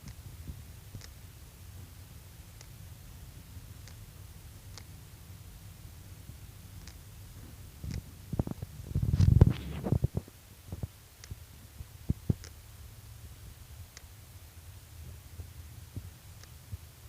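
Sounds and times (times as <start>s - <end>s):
steady low rumble: 0.1s - 17.0s
scattered clicks: 4.7s - 5.0s, 6.8s - 7.0s, 7.8s - 11.4s, 12.1s - 12.6s, 13.9s - 14.2s.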